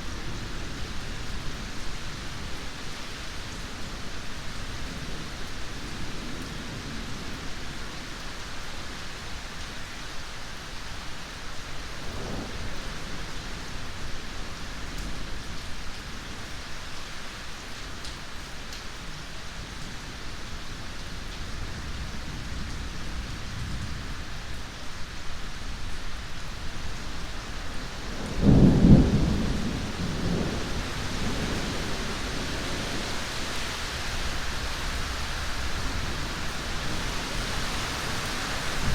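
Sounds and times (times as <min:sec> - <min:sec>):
heavy rain hissing: 0:00.0 - 0:38.9
distant thunder rolling: 0:28.0 - 0:34.0, 0:35.0 - 0:38.9.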